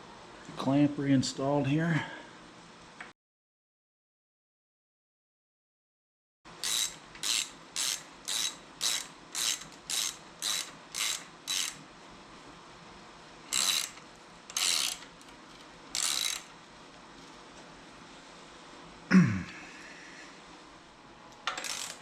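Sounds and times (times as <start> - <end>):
ratchet wrench clicking: 6.6 - 11.8, 13.5 - 15.1, 15.9 - 16.5, 21.5 - 22.0.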